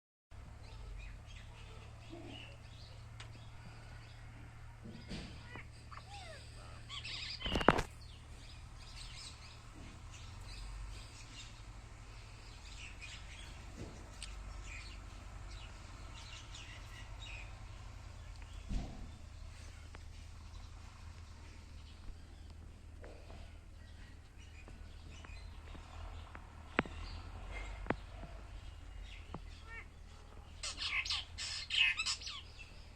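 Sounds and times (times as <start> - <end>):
small bird chirping: 5.4 - 22.9, 23.8 - 32.9.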